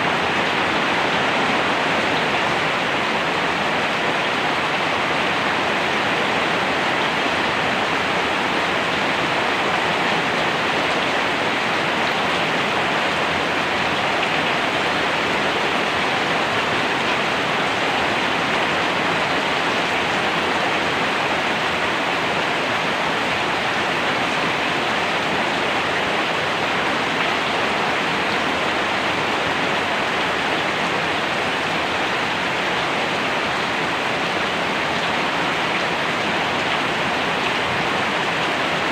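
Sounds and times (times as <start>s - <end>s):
steady rain hissing: 0.0s - 38.9s.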